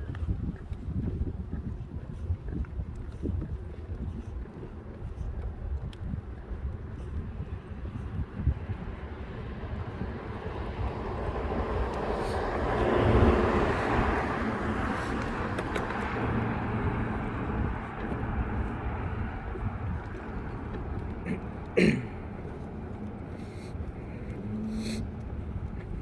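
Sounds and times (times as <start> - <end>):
vehicle passing: 9.0 - 26.0.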